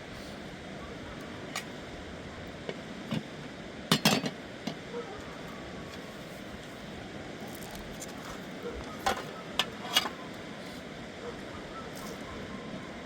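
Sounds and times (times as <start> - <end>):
dishes and utensils clinking: 3.9 - 4.4.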